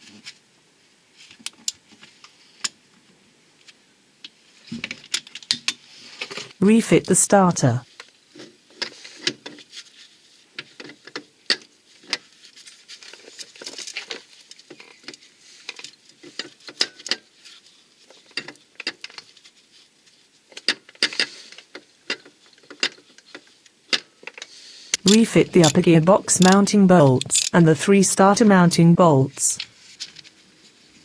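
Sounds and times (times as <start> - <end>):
metal tools clicking and clinking: 25.0 - 27.6.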